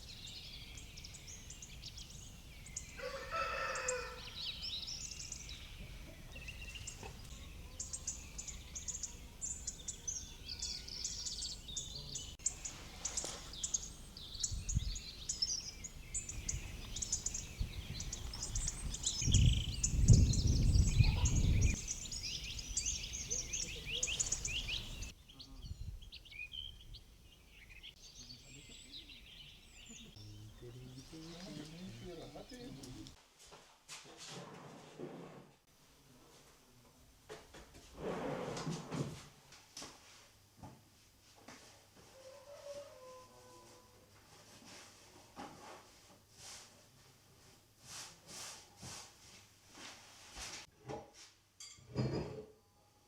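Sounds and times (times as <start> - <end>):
songbirds singing: 0.0 - 33.2
rooster crowing: 3.0 - 4.5, 42.1 - 44.0.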